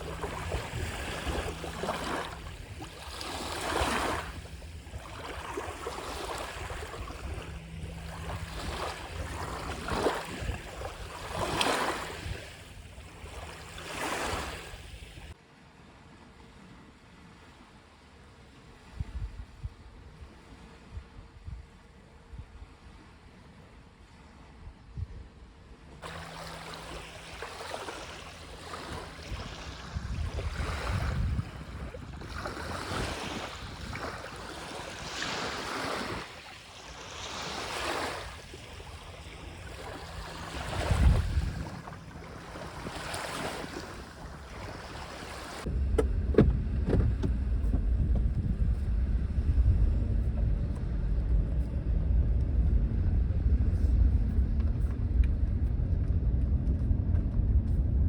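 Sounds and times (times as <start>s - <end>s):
steady low rumble: 0.0s - 15.4s, 24.9s - 35.1s, 38.2s - 58.0s
small waves lapping: 0.0s - 24.8s, 25.6s - 45.7s.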